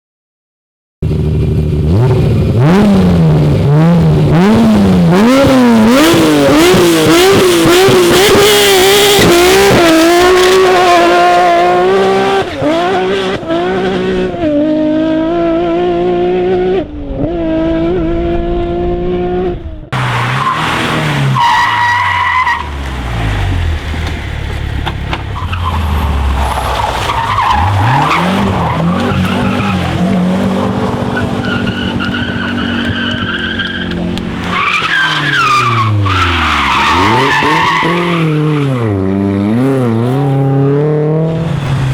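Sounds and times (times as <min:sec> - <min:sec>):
car engine at lower revs: 0:01.0 - 0:41.9
rally car engines revving: 0:01.0 - 0:41.9.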